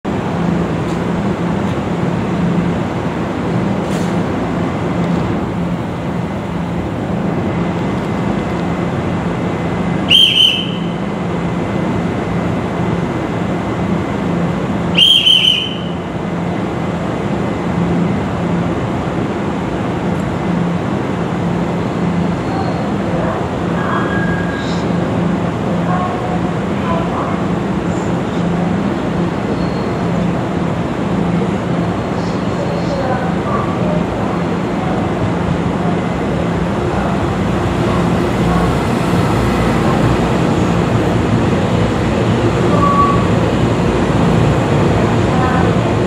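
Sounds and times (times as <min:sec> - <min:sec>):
railway platform rumbling hum: 0:00.0 - 0:46.0
shrill whistle blasts: 0:10.1 - 0:11.0, 0:15.0 - 0:16.0.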